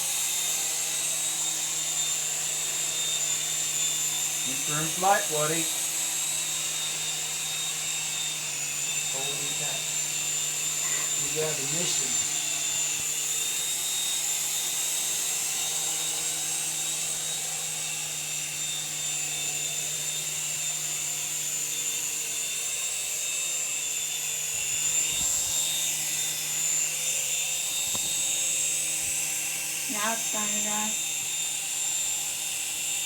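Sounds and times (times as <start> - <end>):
electric motor whine: 0.0 - 33.0
helicopter rotor hum: 0.0 - 33.0.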